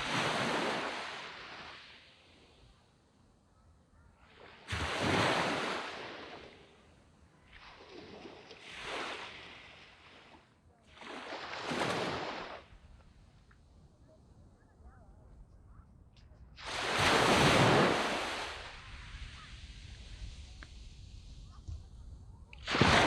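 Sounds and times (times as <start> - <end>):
waves washing up a sandy beach: 0.0 - 3.0, 4.2 - 13.0, 16.6 - 23.0.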